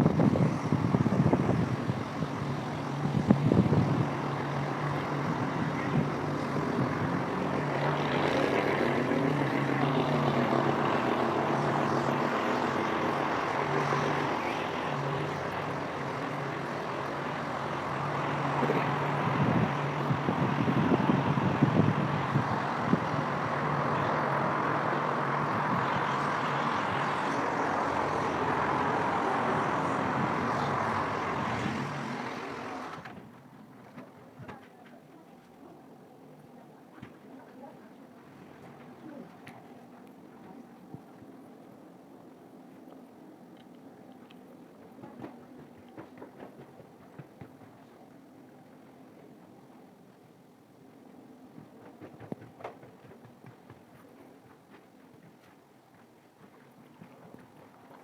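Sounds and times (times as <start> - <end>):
vehicle passing by: 0.0 - 33.2
traffic hum: 0.0 - 58.0.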